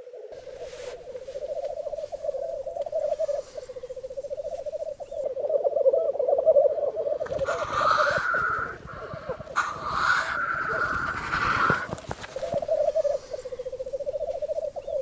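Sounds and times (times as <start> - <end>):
black grouse bubbling chorus: 0.0 - 15.0
grouse hissing call: 0.0 - 15.0.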